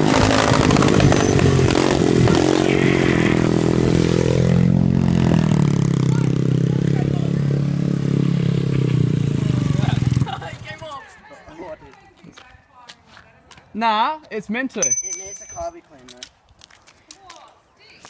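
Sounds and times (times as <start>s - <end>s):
pit bike engine revving and idling: 0.0s - 10.8s.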